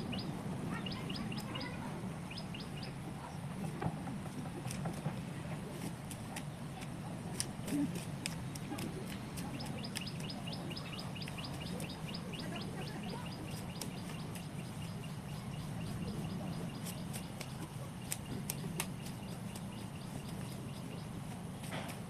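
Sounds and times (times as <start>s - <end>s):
bird chirping rapidly: 0.1s - 3.0s, 9.6s - 21.2s.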